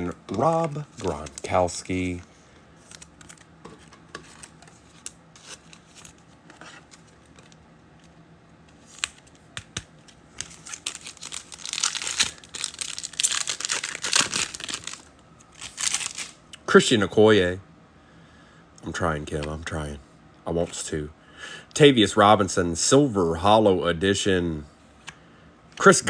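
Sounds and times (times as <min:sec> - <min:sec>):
foil wrapper crinkling and tearing: 0:00.0 - 0:02.2, 0:10.4 - 0:16.4.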